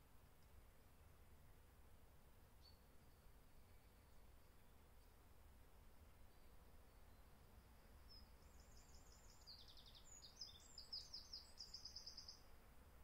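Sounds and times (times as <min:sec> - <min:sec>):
songbird singing with trill: 0:02.6 - 0:05.2, 0:06.2 - 0:12.5.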